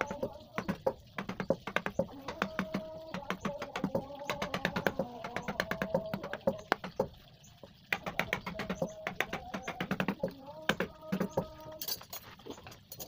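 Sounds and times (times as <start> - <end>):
mallet tapping chisel into wood: 0.6 - 7.1, 7.9 - 11.4.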